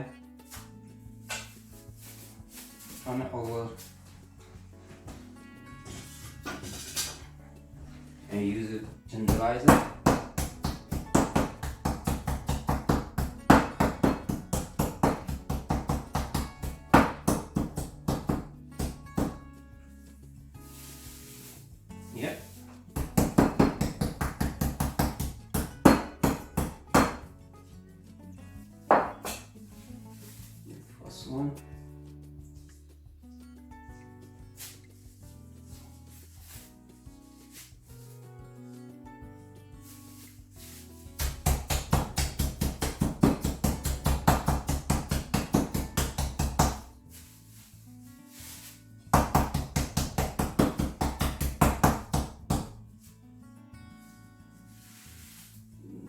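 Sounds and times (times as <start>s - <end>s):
background music: 0.0s - 56.0s
meat tenderizer pounding chicken: 9.3s - 19.2s, 41.2s - 46.8s.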